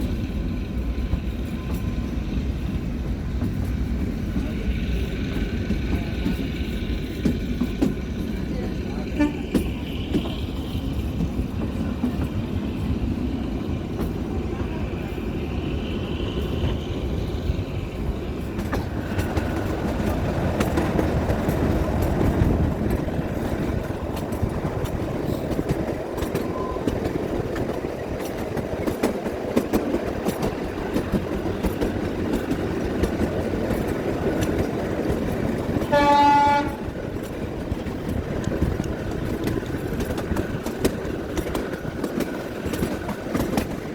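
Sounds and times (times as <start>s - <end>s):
train carriage rumbling: 0.0s - 43.9s
wheels clicking over rail joints: 0.0s - 43.9s
train horn blast: 9.1s - 9.5s, 35.8s - 36.9s.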